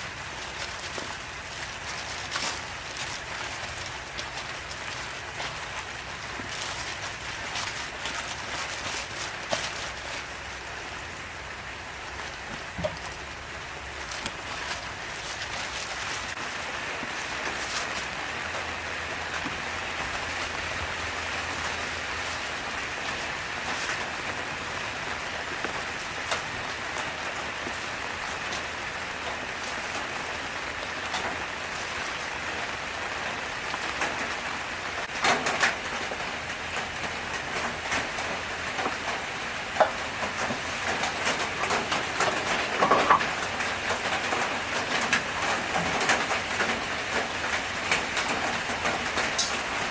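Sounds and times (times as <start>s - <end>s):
food frying in hot oil: 0.0s - 49.9s
utensil clacking against pan: 39.7s - 43.5s.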